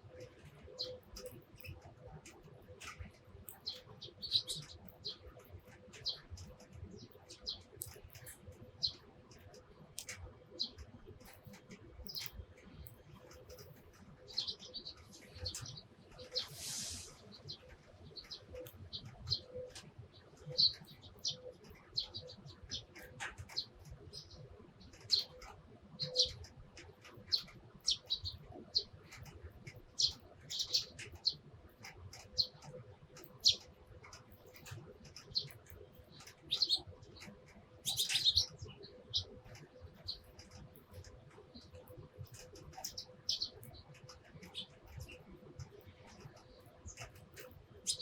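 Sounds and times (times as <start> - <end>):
sparrows chirping: 0.1 - 48.0
rapid bird chattering: 2.8 - 6.5, 20.4 - 48.0.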